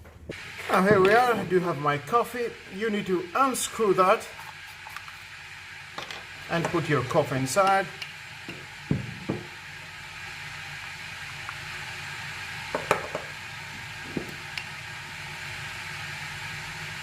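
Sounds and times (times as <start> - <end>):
steady background hiss: 0.0 - 16.8.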